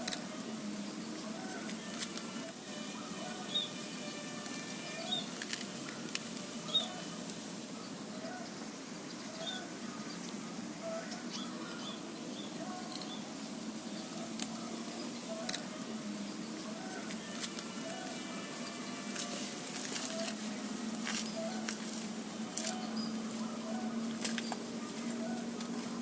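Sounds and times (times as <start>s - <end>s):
dove cooing: 0.0s - 3.6s, 10.8s - 12.0s, 14.0s - 26.0s.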